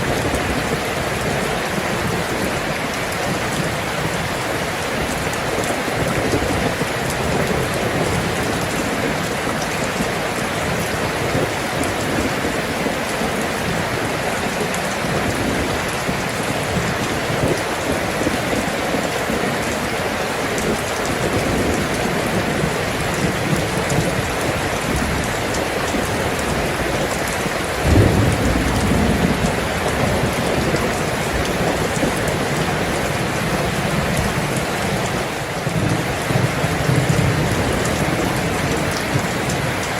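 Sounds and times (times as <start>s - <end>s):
steady rain falling: 0.0s - 39.9s
low rumble of thunder: 26.0s - 34.3s.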